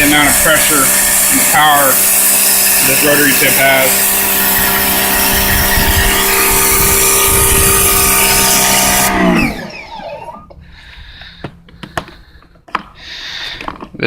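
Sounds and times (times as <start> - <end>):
water spray blasting concrete: 0.0 - 10.3
pressure washer motor humming: 0.0 - 11.9.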